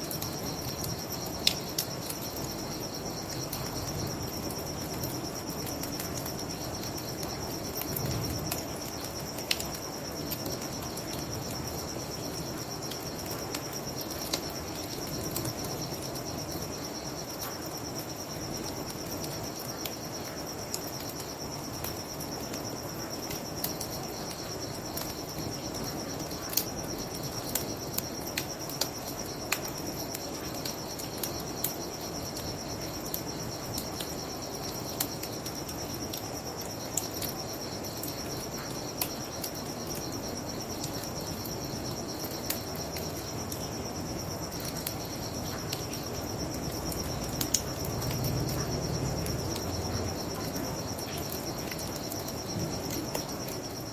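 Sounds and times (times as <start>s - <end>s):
crickets chirping: 0.0s - 53.9s.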